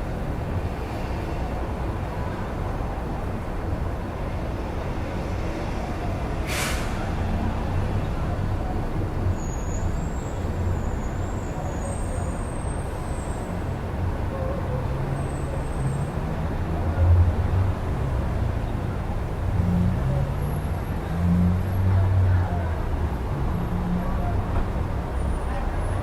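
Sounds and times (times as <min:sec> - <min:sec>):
street traffic rumble: 0:00.0 - 0:26.0
air brake hiss: 0:06.4 - 0:07.1
faint high squeals: 0:09.4 - 0:13.4.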